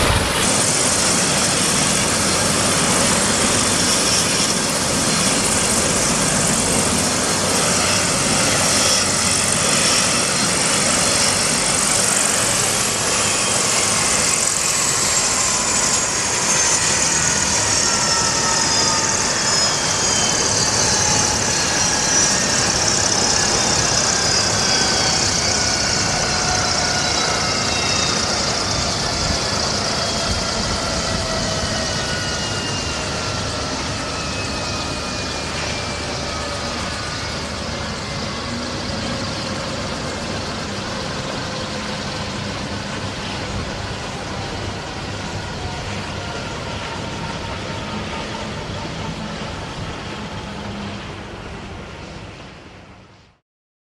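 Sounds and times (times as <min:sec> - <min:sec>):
engine whine falling in pitch: 0:00.0 - 0:01.3
helicopter turbine and rotor: 0:00.0 - 0:53.4.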